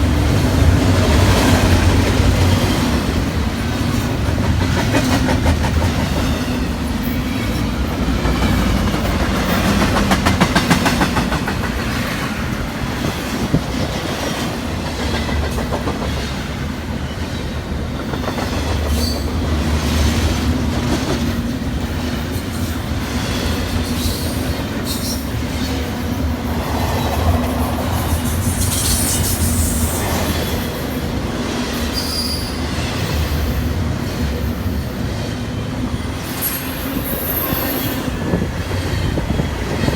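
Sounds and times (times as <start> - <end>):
train rumbling on rails: 0.0 - 39.9
high-pitched wheel squeals: 31.9 - 32.7.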